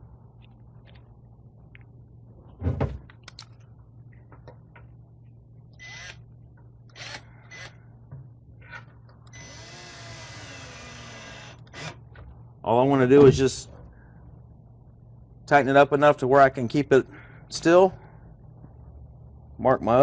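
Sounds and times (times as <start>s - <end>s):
cordless drill running: 9.3s - 12.0s.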